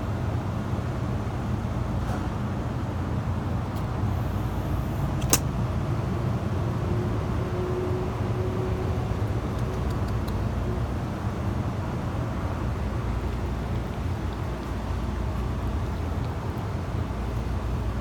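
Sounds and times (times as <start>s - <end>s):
low outdoor rumble: 3.2s - 18.0s
sharp click: 5.2s - 5.5s.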